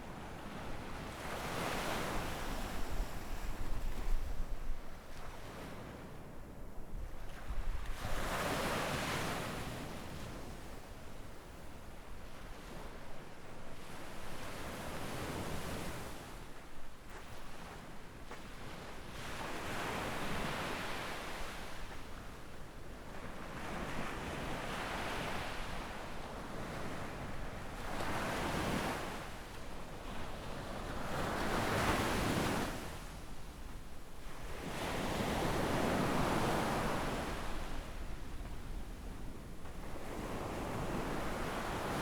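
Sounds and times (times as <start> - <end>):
wind rumble on microphone: 2.1 - 8.5
small waves breaking on sand: 7.2 - 11.3, 12.1 - 42.0.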